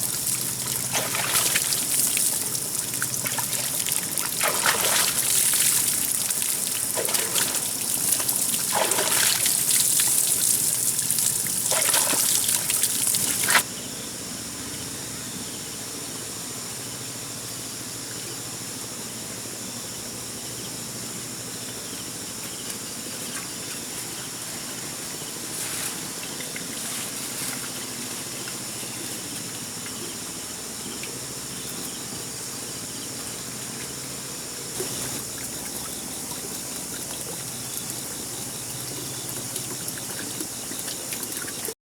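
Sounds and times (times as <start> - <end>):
water trickling and splashing: 0.0 - 13.6, 23.1 - 31.0, 33.4 - 41.8
outdoor background: 0.0 - 41.8.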